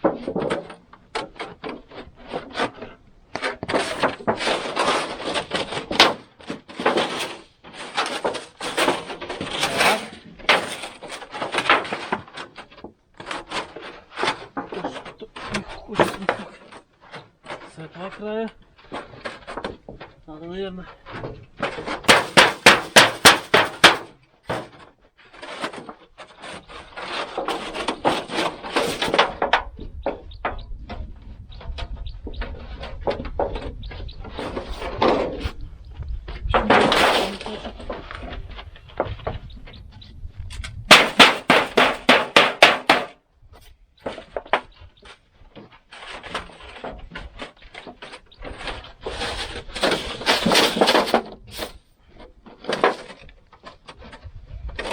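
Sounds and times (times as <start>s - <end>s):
scraping and handling noise: 0.0s - 54.9s
rapid hammer blows: 22.1s - 24.1s, 40.9s - 43.1s.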